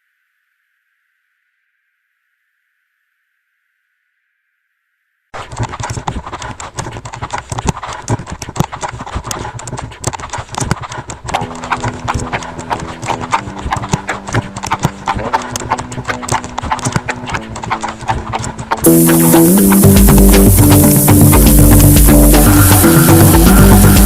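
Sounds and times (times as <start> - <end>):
low synth bass tone: 18.9 - 24.0.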